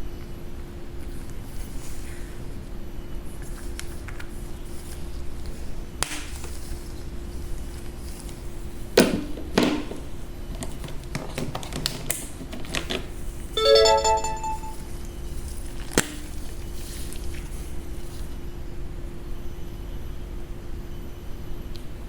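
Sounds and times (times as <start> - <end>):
electronic notification chime: 13.6 - 14.8.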